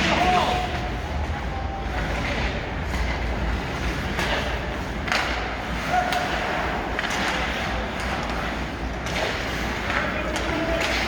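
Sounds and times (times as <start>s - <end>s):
hockey knocks and thuds on ice: 3.9s - 11.0s.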